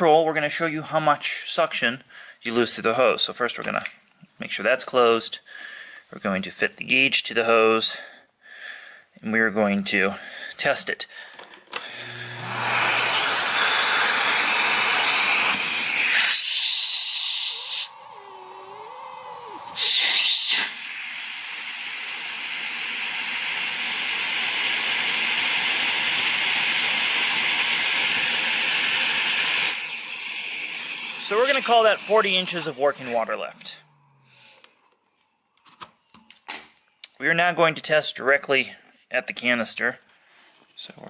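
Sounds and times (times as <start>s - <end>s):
vacuum cleaner running: 11.9s - 33.4s
high whistle: 16.0s - 18.0s, 19.4s - 20.8s
wavering low tone: 17.5s - 19.8s.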